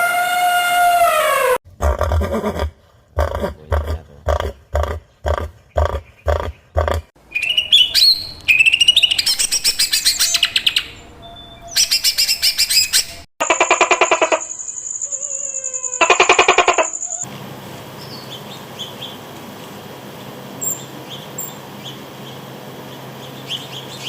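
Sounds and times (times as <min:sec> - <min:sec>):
bird chirps and trills: 0:04.5 - 0:17.3, 0:18.0 - 0:19.3, 0:20.2 - 0:24.0
pulsed bird call: 0:05.8 - 0:17.3.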